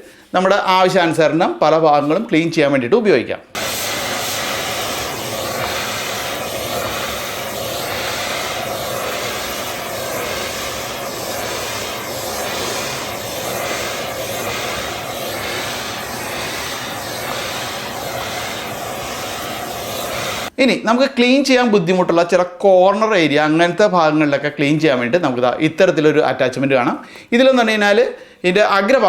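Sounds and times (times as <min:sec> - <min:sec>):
vacuum cleaner running: 0:03.6 - 0:20.6.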